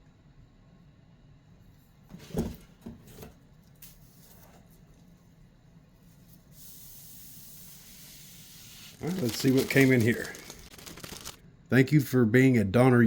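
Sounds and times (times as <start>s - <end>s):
packaging thump: 9.0s - 11.4s.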